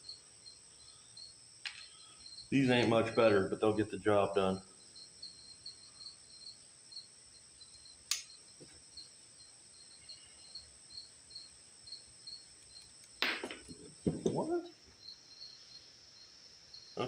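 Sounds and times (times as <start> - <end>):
cricket chirping: 0.0 - 17.0
sharp click: 8.1 - 8.3.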